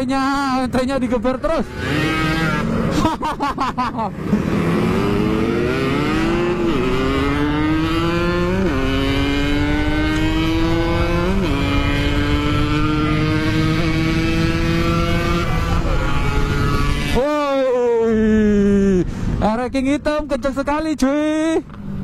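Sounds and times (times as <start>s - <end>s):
motorcycle engine revving: 1.3s - 3.2s, 4.0s - 17.5s
motorcycle accelerating through gears: 1.5s - 3.1s, 4.1s - 17.3s.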